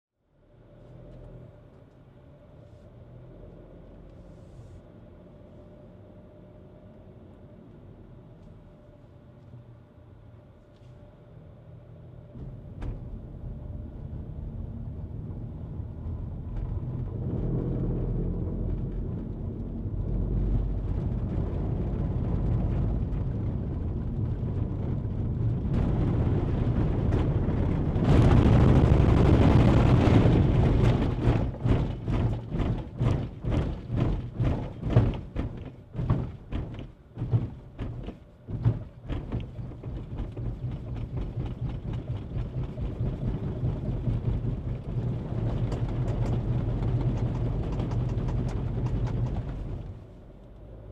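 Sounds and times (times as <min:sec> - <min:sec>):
road and engine rumble: 0:00.2 - 0:50.9
irregular thumps: 0:28.0 - 0:49.9.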